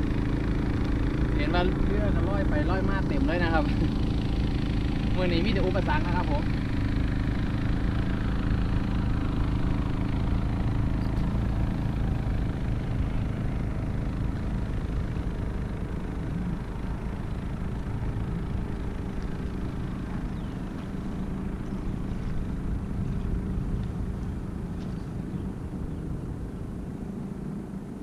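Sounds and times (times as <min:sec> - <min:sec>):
motor engine humming: 0:00.0 - 0:28.0.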